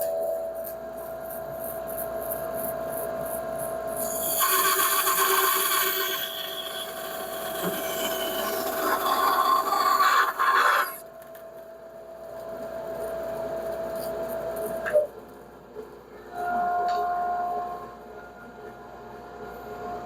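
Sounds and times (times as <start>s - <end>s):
saw and dust collector hum: 3.9s - 11.0s
bandsaw cutting wood: 4.0s - 11.0s.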